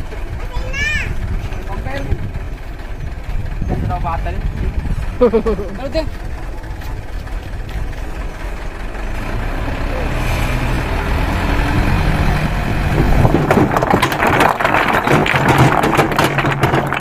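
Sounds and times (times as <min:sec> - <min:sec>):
diesel truck engine running: 0:00.0 - 0:17.0
stones tumbling and clattering: 0:12.9 - 0:17.0.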